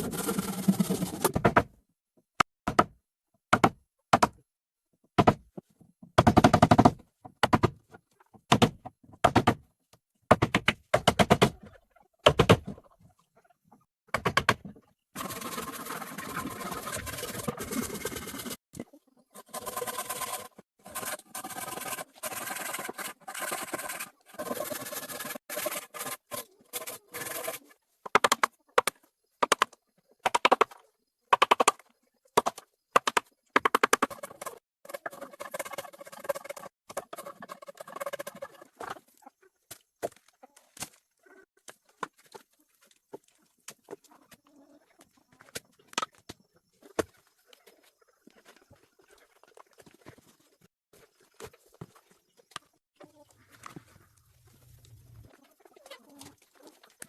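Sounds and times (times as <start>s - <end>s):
hand tools scraping wood: 0.0s - 1.4s, 19.3s - 27.7s, 33.8s - 39.0s.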